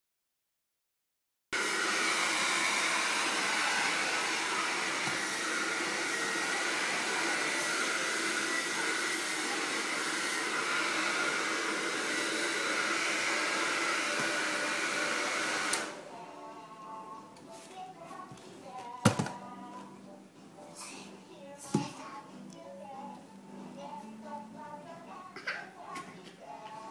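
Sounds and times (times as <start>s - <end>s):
hair dryer blowing: 1.6s - 16.1s
hair dryer switch click: 15.7s - 15.9s.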